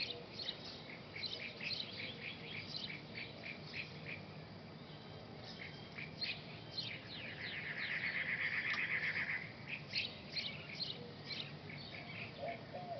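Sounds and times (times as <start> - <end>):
birds chirping: 0.0 - 12.9
bird trill: 4.9 - 12.9.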